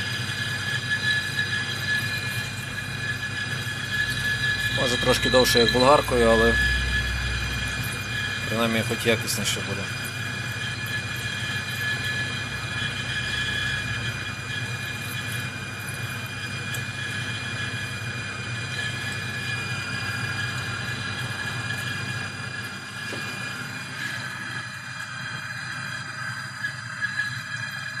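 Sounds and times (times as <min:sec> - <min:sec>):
high whine of cutting: 0:00.0 - 0:28.0
metal lathe running: 0:00.0 - 0:28.0.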